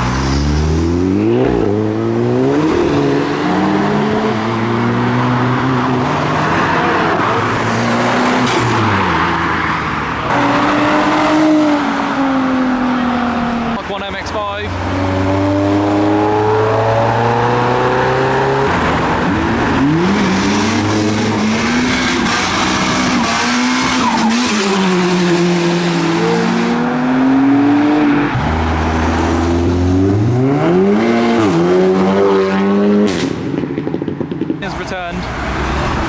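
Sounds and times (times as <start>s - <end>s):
car engines revving and accelerating: 0.0s - 36.0s.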